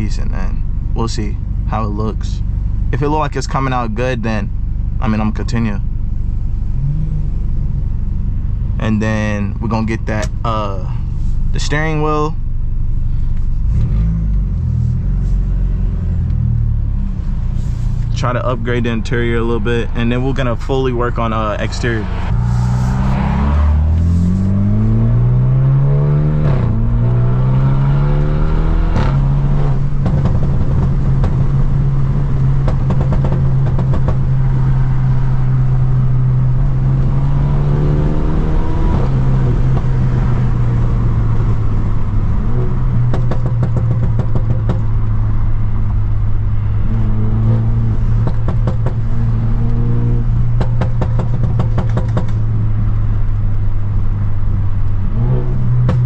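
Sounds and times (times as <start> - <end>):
car engine accelerating: 0.0 - 56.0
exhaust crackles and pops: 28.2 - 37.2, 39.0 - 56.0.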